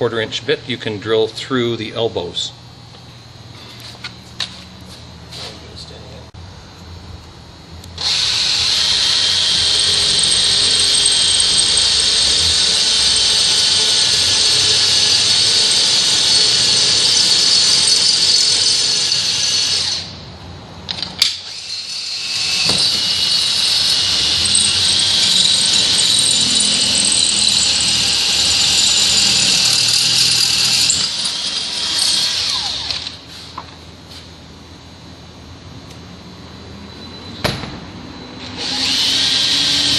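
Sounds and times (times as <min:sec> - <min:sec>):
drill whining through metal: 0:08.0 - 0:20.2, 0:21.2 - 0:33.4, 0:38.4 - 0:39.9.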